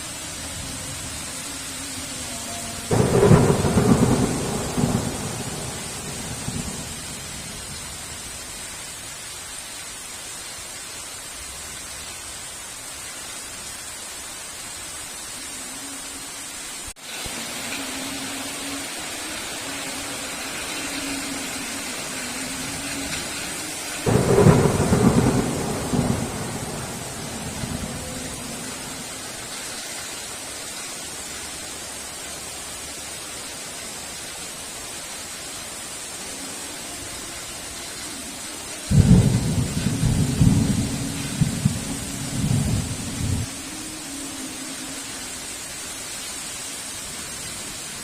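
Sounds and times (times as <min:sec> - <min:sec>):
heavy rain: 0:00.0 - 0:48.0
loud thunderclaps: 0:02.9 - 0:07.0, 0:24.1 - 0:28.4.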